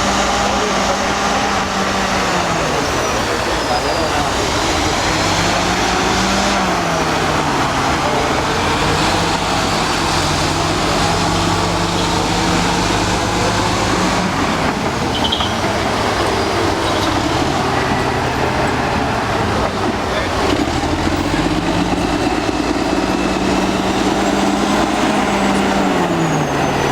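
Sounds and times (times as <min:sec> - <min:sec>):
bulldozer diesel engine running: 0:00.0 - 0:26.9.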